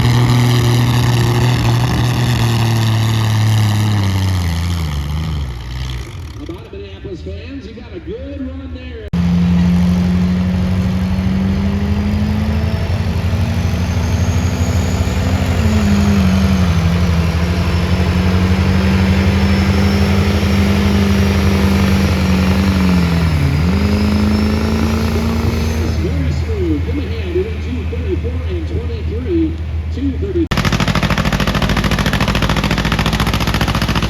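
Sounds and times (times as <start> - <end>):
tractor engine running under load: 0.0 - 6.6, 9.2 - 34.0.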